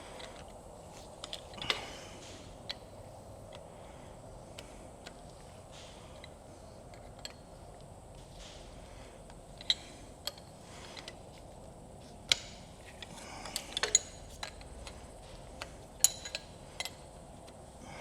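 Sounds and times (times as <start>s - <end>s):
hand tools clinking on metal: 16.0s - 17.1s.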